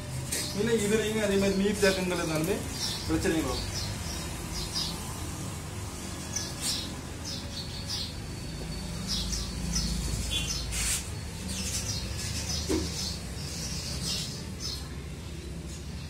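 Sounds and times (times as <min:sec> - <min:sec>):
small birds chirping: 0:00.3 - 0:16.0.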